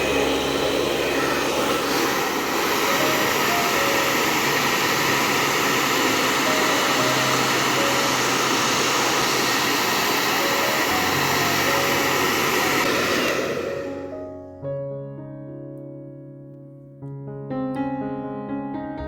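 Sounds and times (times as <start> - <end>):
hair dryer blowing: 0.0 - 14.3
soft background music: 2.3 - 17.0.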